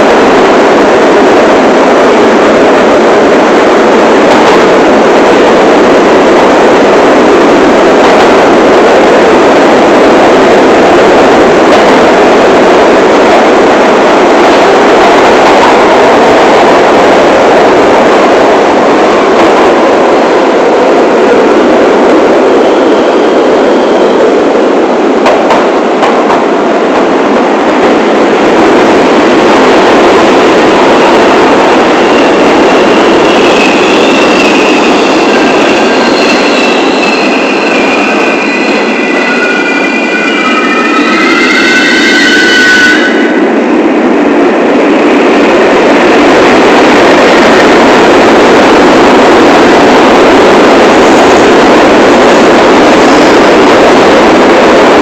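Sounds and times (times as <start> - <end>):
subway train rumbling in tunnel: 0.0 - 55.0
high-pitched wheel squeal: 32.1 - 43.4.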